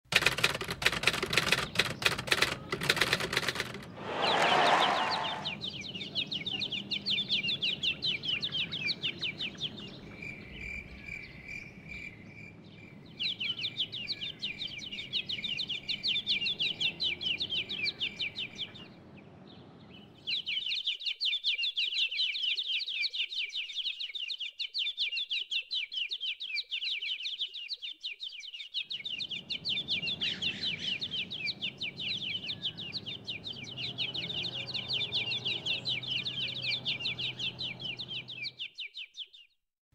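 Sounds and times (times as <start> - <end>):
rapid high chirping: 1.0 - 5.7, 28.8 - 38.6.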